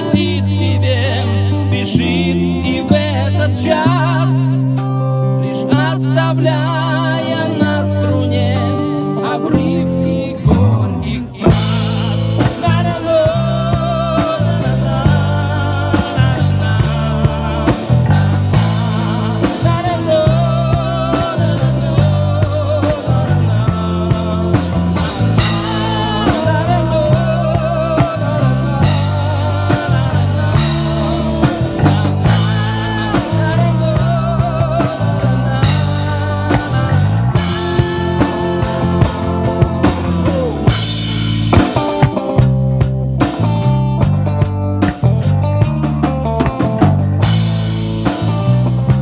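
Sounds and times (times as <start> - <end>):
bass guitar: 0.0 - 49.0
lead guitar wavering notes: 0.0 - 49.0
drum kit: 11.4 - 49.0.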